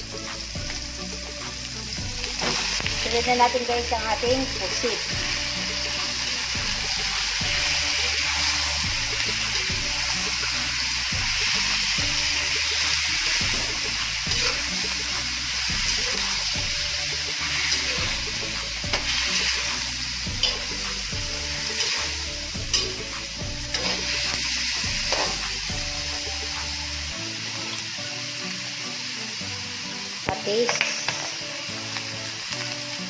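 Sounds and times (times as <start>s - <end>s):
food sizzling in oil: 0.0s - 33.0s
metal spatula scraping wok: 2.2s - 26.4s.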